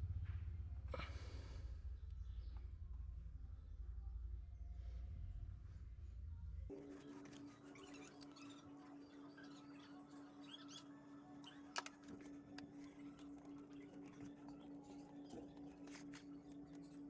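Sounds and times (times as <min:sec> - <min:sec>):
faint scratching and clicking: 0:06.7 - 0:17.0.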